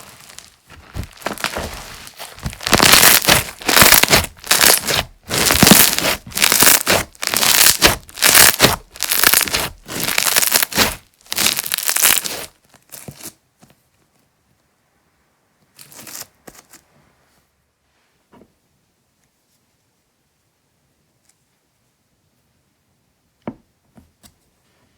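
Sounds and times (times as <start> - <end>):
slime being squeezed: 0.0 - 12.5.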